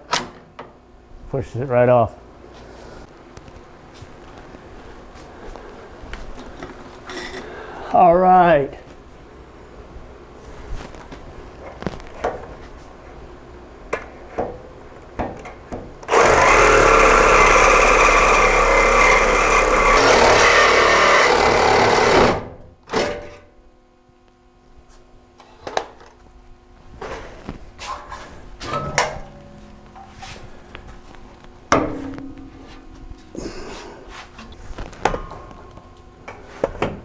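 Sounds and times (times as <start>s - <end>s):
power tool running: 16.0s - 23.1s.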